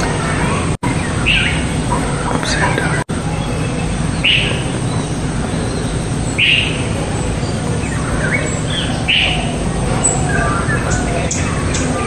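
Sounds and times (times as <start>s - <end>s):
bird chirping: 0.0s - 12.0s
faint chirping: 0.0s - 12.0s.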